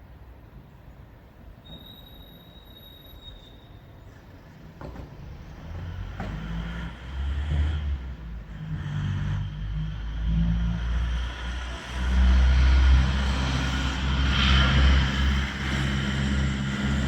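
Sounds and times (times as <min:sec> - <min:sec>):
knocks: 0:04.8 - 0:06.9
low rumbling noise: 0:05.1 - 0:17.0.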